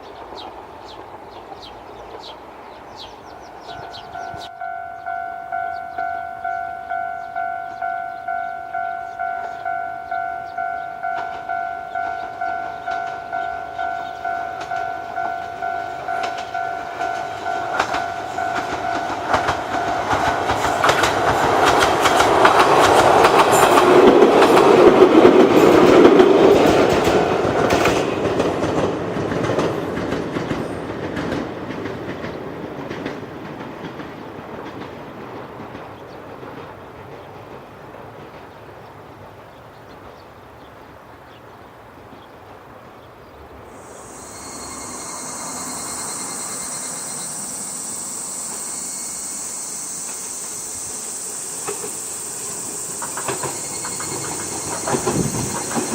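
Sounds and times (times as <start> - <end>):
wheels clacking over rail joints: 0.0 - 41.3, 43.6 - 55.9
electric train passing: 0.0 - 55.9
level crossing bell ringing: 3.7 - 23.8, 25.7 - 28.0, 43.8 - 51.8.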